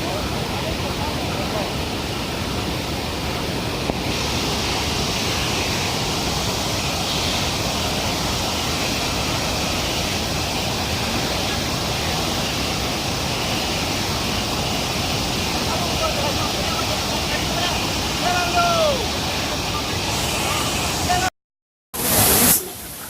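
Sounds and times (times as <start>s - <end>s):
waterfall rushing: 0.0s - 21.3s, 22.0s - 23.0s.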